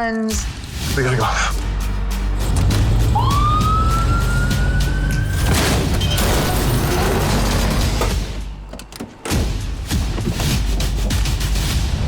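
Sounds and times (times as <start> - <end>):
low droning music: 0.7 - 12.0
rising siren-like tone: 3.1 - 5.5.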